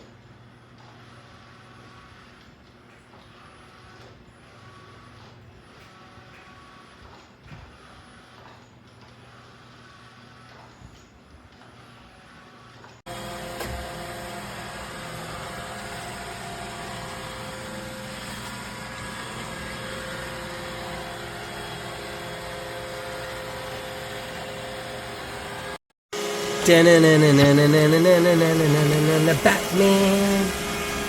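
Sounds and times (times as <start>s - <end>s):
robot vacuum motor whirring: 12.6s - 31.0s.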